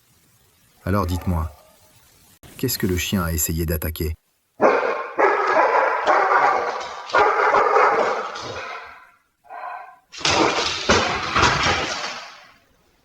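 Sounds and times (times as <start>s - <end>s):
dog snarling and barking: 4.6s - 12.0s.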